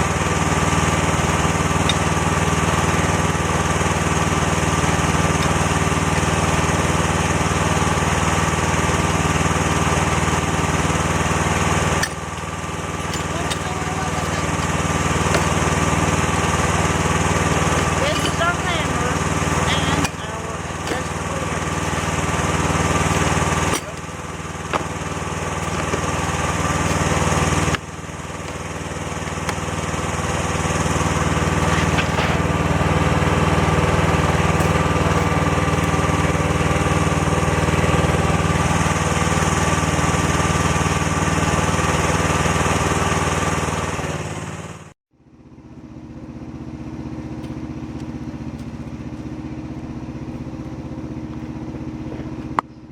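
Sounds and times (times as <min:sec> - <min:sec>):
quieter engine: 0:00.0 - 0:52.9
small engine running: 0:00.0 - 0:52.9.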